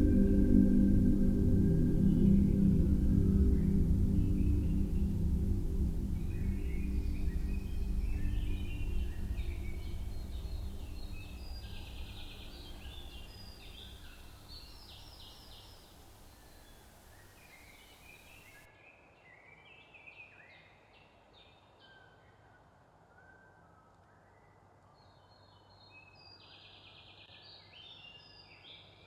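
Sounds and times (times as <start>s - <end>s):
low synth drone: 0.0s - 17.2s
birds chirping and trilling: 0.0s - 18.6s.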